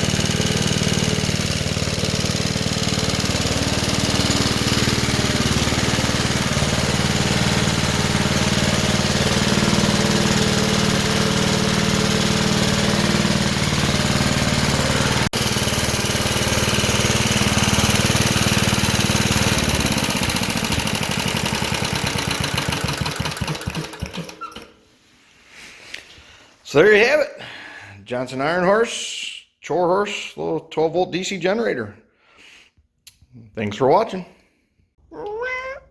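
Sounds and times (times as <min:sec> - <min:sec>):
small gasoline engine running: 0:00.0 - 0:24.8.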